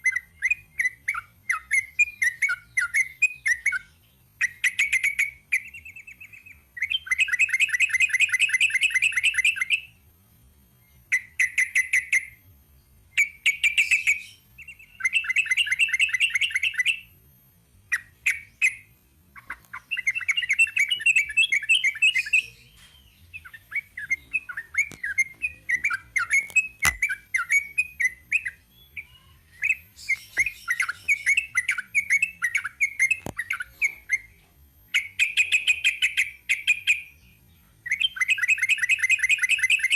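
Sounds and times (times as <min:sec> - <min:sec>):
bird singing bright notes: 0:17.9 - 0:39.9.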